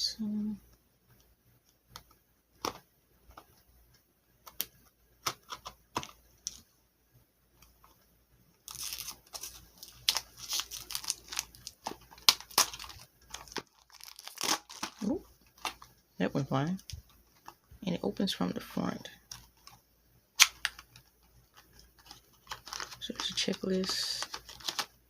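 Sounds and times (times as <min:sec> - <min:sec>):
packaging tearing and crinkling: 0:08.7 - 0:15.9, 0:22.0 - 0:24.9.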